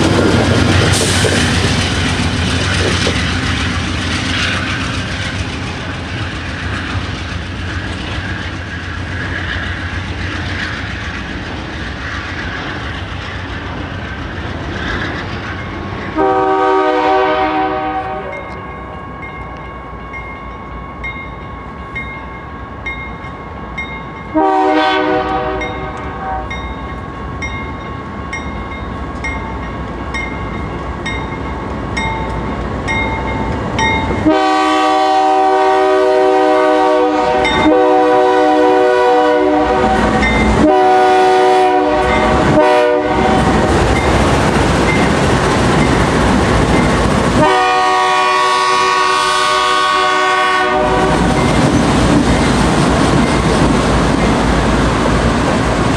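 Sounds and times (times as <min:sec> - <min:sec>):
train rumble: 0:00.0 - 0:55.9
locomotive air horn blasts: 0:16.2 - 0:18.5, 0:24.3 - 0:26.6, 0:34.2 - 0:43.6, 0:47.4 - 0:51.3.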